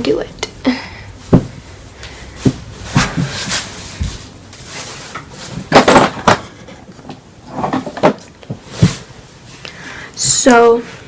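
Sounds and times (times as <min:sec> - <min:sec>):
small objects knocking and clattering: 0:05.0 - 0:08.9.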